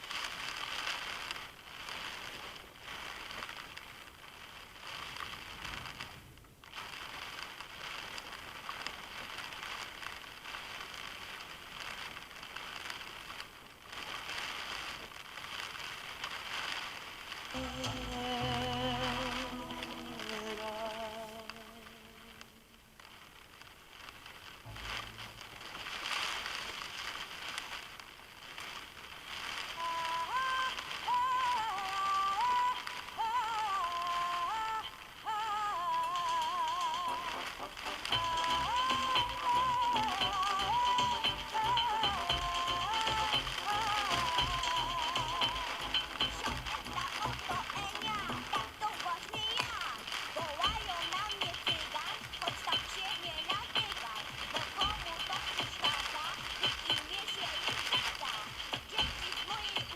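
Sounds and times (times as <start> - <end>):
heavy rain on a car roof: 0.0 - 59.9
person singing a song: 17.5 - 22.6, 29.8 - 59.9
low rumble: 24.6 - 26.6.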